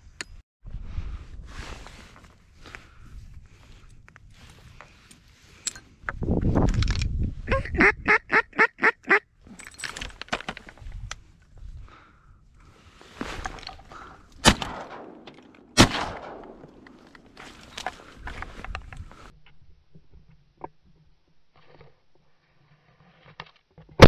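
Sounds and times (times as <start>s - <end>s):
duck quacks: 7.5s - 9.2s
shotgun shots: 14.4s - 17.4s.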